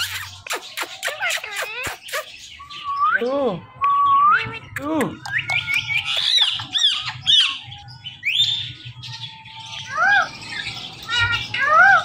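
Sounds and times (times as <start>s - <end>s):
parrot squawking: 0.0s - 2.7s, 5.6s - 8.6s, 9.8s - 12.0s.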